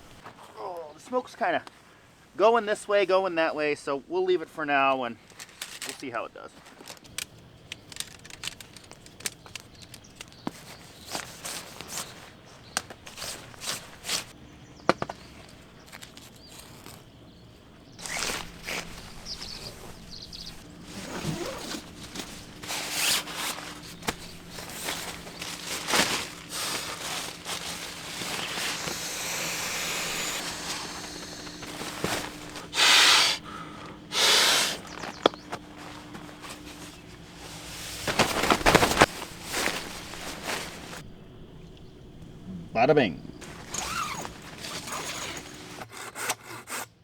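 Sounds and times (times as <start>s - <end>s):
rustling: 5.1s - 42.5s, 43.2s - 45.8s
footsteps: 18.0s - 41.0s.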